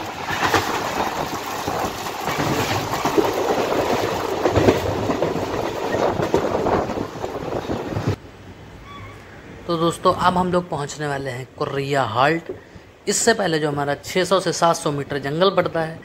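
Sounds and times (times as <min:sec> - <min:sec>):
wheels clacking on rails: 0:00.0 - 0:08.2
train coaches rumbling: 0:00.0 - 0:16.0.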